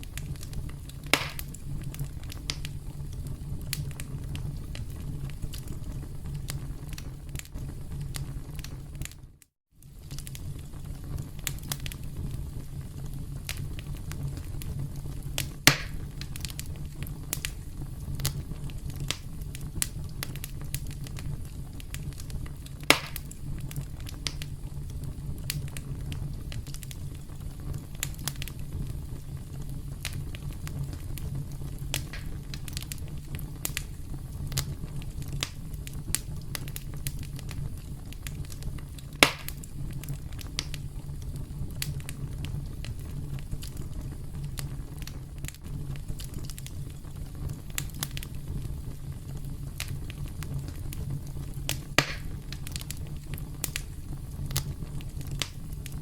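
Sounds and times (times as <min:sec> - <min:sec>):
campfire crackling: 0:00.0 - 0:56.0
sharp fire pops: 0:00.0 - 0:56.0.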